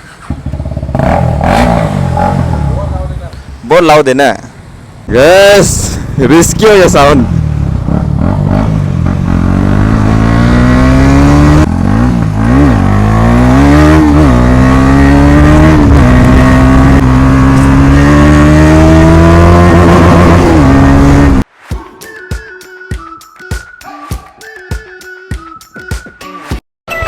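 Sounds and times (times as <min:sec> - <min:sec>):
loud motorcycle engine revving: 0:00.2 - 0:03.0, 0:06.6 - 0:21.4.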